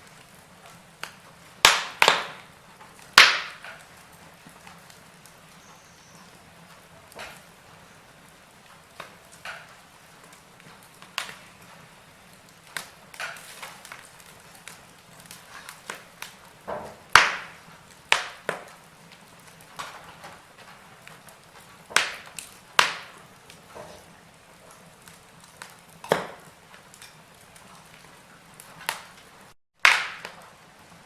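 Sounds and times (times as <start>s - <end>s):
faint fire hiss: 0.0s - 31.0s
fire crackling and popping: 0.0s - 31.0s.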